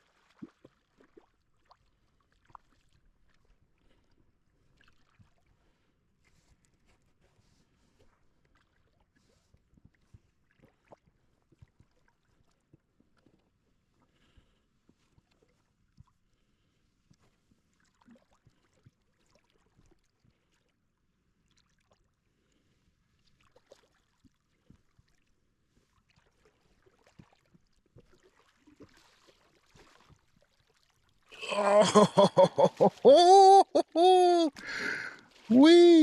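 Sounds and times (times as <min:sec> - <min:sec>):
man exclaiming loudly: 0:31.4 - 0:36.0.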